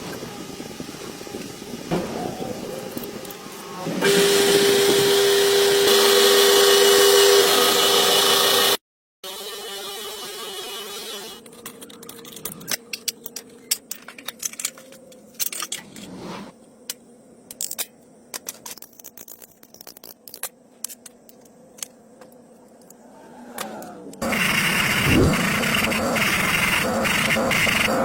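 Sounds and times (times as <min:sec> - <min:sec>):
metal scrape: 0:13.7 - 0:16.6.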